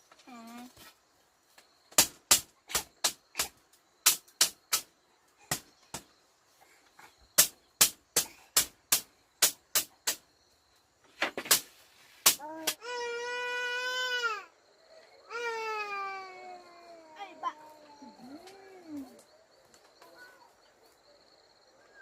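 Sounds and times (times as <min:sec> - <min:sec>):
hand tool striking wood: 0:01.9 - 0:04.9, 0:07.4 - 0:10.2, 0:11.2 - 0:12.8.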